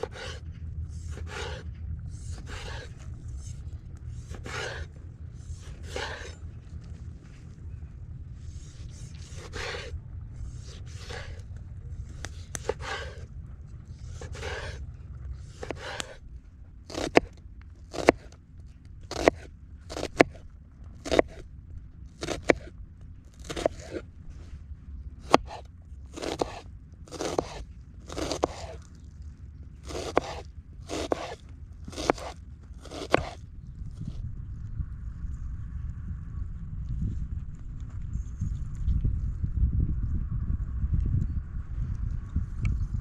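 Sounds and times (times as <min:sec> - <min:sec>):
crunching scrapes: 0:00.0 - 0:34.3
low steady rumble: 0:00.0 - 0:43.0.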